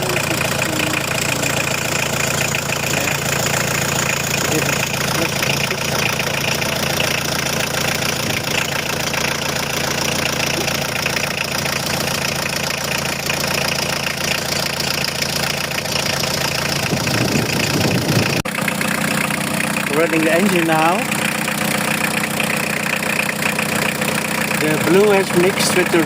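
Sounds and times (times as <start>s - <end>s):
van engine idling: 0.0s - 26.0s.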